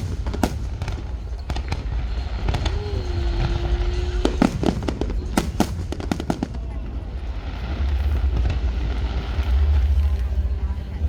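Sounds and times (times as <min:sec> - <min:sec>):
fireworks popping and crackling: 0:00.0 - 0:11.0
low rumble: 0:00.0 - 0:11.0
steady low tone: 0:00.0 - 0:11.0.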